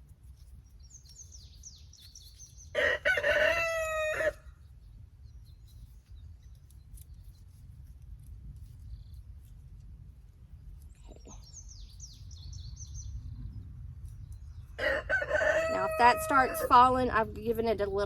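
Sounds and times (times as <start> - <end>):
small birds chirping: 0.0 - 18.0
rooster crowing: 2.8 - 4.4, 14.8 - 16.8.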